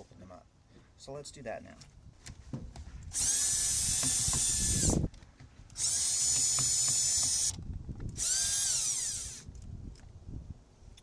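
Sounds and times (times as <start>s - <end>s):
cordless drill motor whine: 3.1s - 5.1s, 5.7s - 9.6s.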